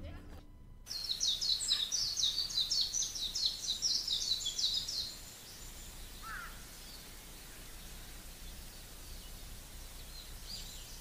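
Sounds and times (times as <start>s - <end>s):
faint outdoor background noise: 0.0s - 11.0s
low bird call: 0.9s - 8.1s
songbird singing rapid high notes: 0.9s - 11.0s.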